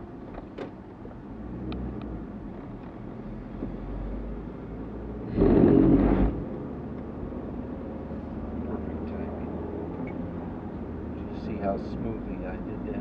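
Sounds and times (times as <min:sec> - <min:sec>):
car interior road noise: 0:00.0 - 0:13.0
tyres rumbling over ridges: 0:05.3 - 0:06.5.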